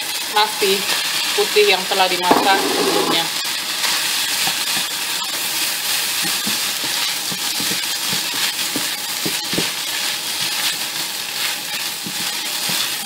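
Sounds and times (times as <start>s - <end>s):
rice sizzling in a pan: 0.0s - 13.0s
spatula scraping a pan: 2.2s - 3.3s.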